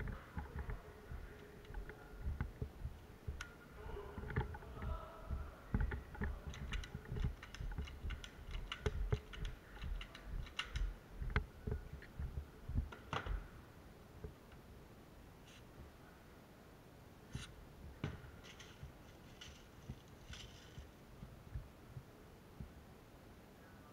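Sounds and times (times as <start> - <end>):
sharp clicks: 0.0 - 3.6, 4.2 - 13.4
low thumps and knocks: 0.0 - 13.6.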